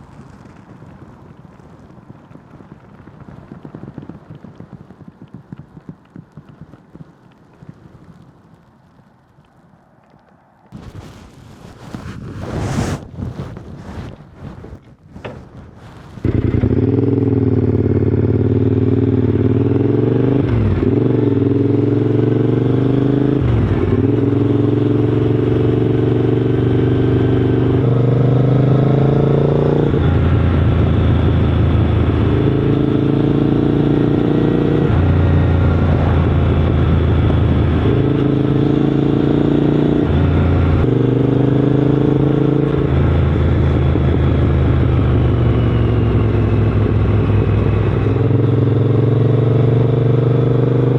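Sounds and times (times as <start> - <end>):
motorcycle engine revving: 16.2 - 50.9.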